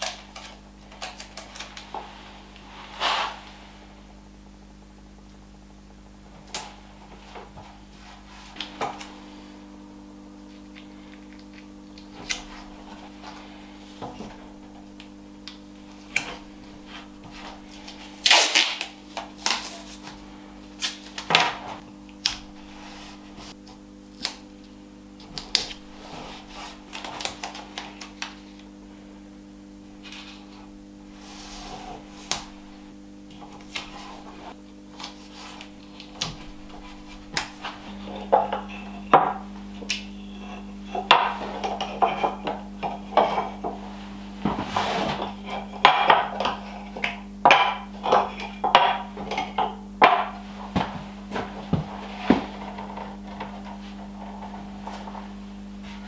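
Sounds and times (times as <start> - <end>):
steady hum: 0.0 - 56.0
wooden pieces knocking: 36.2 - 43.9, 45.2 - 53.4.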